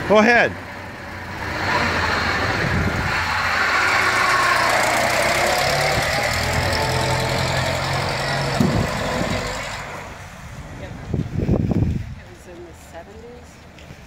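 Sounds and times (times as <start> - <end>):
car engine pulling away: 0.6 - 11.1.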